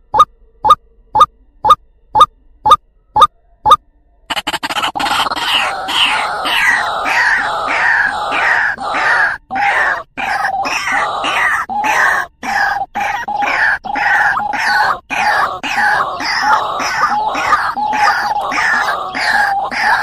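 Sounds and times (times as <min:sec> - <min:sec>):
waterhen calling: 0:05.0 - 0:20.0.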